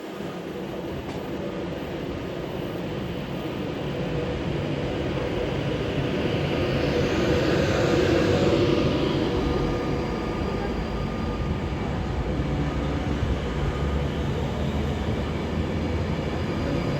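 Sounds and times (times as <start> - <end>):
faint steady hum: 0.1 - 16.0
electric train pulling away: 3.8 - 16.9.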